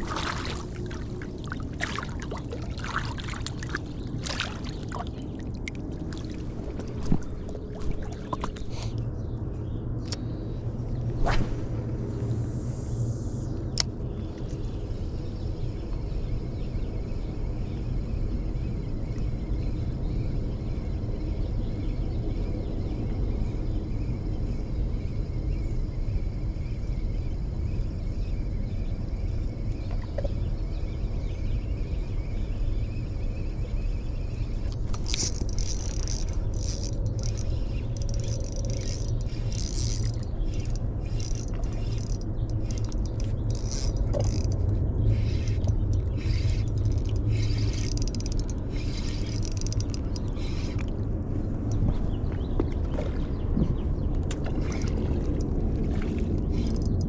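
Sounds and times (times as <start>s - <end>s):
low outdoor rumble: 0.0s - 24.2s, 27.2s - 57.0s
faint high whine: 10.2s - 18.9s.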